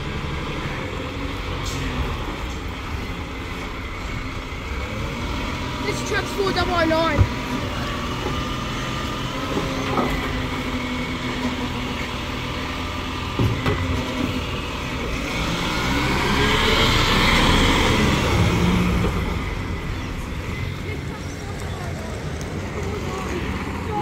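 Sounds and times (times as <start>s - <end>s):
garbage truck diesel engine: 0.0s - 24.0s.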